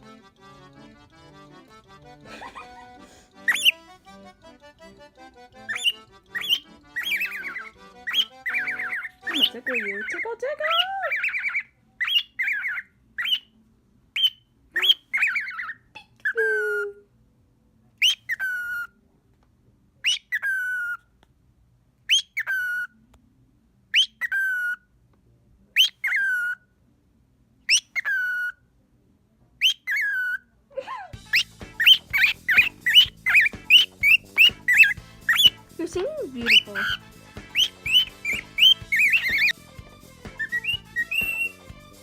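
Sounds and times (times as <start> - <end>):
bird chirping and whistling: 3.5 - 3.8, 5.6 - 13.5, 14.2 - 15.8, 18.0 - 18.9, 20.1 - 21.0, 22.1 - 22.9, 24.0 - 24.8, 25.8 - 26.6, 27.7 - 28.6, 29.6 - 30.4, 31.2 - 41.7.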